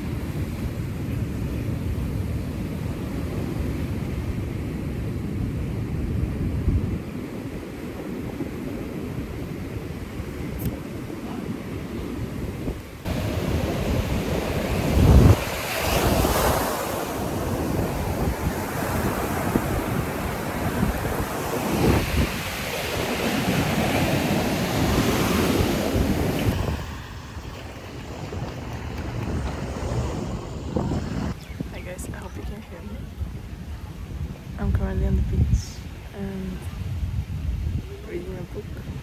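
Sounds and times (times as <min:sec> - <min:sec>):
sea waves breaking on beach: 0:00.0 - 0:32.0
wind rumbling on microphone: 0:00.0 - 0:39.0.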